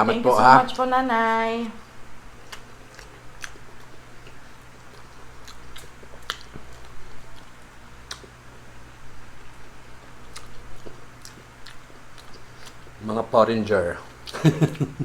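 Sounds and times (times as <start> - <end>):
person chewing: 2.4 - 13.0.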